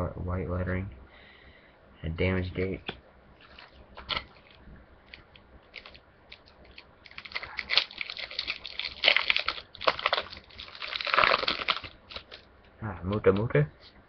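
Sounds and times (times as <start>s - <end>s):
foil wrapper crinkling and tearing: 3.4s - 12.4s.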